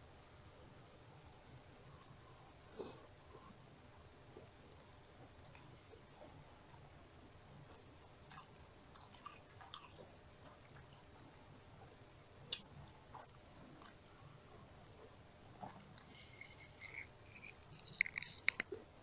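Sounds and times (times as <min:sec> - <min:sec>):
person chewing food: 0:04.4 - 0:11.2, 0:12.2 - 0:18.8.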